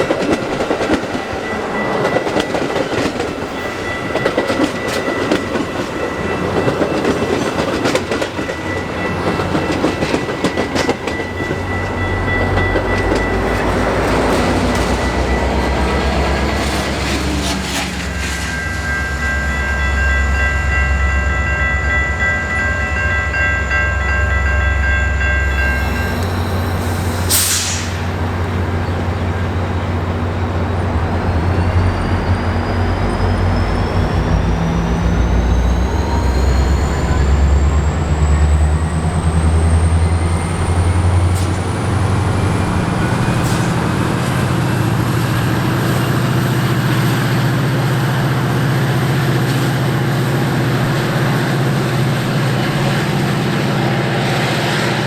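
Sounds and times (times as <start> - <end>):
train locomotive rumbling: 0.0 - 55.0.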